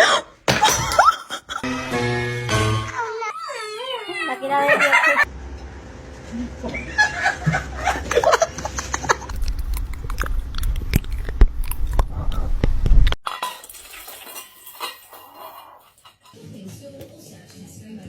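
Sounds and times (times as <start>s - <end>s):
low rumble: 9.1s - 13.2s.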